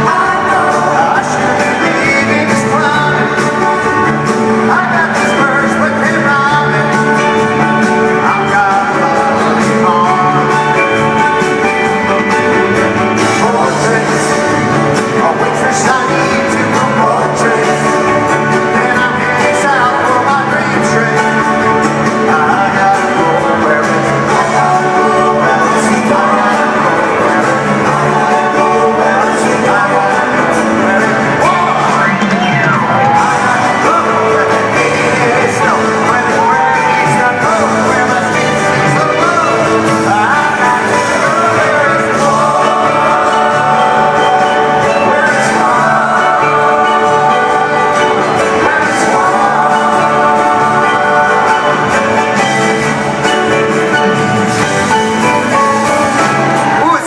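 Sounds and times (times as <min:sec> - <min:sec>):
live band with singing: 0:00.0 - 0:57.0
plucked guitars: 0:00.0 - 0:57.0
audience shouts and whoops: 0:55.5 - 0:57.0.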